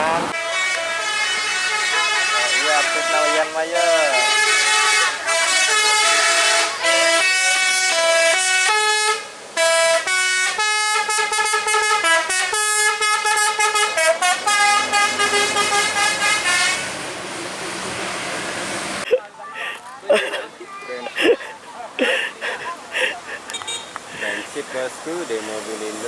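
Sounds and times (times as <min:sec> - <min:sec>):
bus musical horn melody: 0:00.0 - 0:17.2
vehicle noise rushing: 0:00.0 - 0:19.1, 0:21.1 - 0:26.0.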